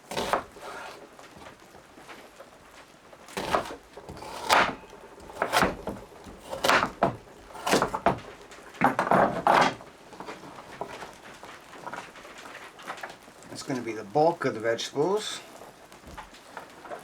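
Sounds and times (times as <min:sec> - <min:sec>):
knife cutting vegetables on wood: 0:00.0 - 0:01.6, 0:03.3 - 0:11.0.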